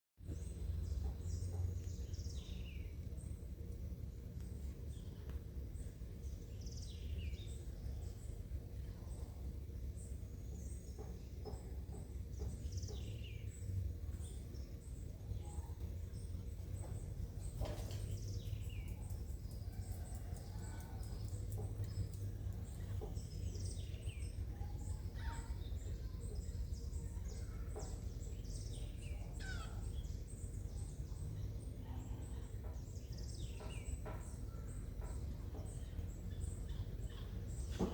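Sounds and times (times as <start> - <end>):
birds chirping: 0.2 - 37.9
low background rumble: 0.2 - 37.9.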